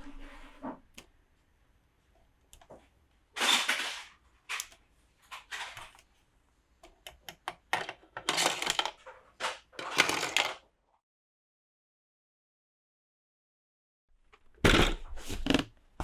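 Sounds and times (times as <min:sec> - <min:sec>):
plastic toy pieces clicking: 0:06.8 - 0:09.0, 0:09.8 - 0:10.6.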